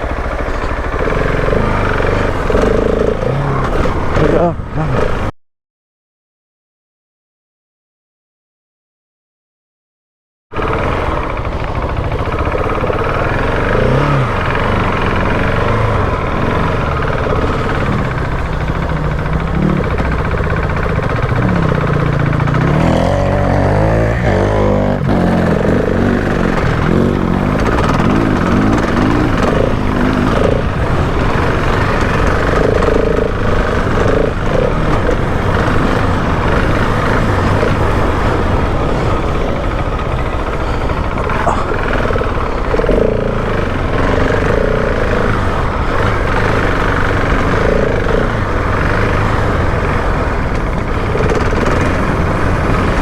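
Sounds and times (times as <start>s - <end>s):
motorcycle engine revving: 0.0s - 5.3s, 10.6s - 53.0s
steady rushing noise: 10.6s - 53.0s.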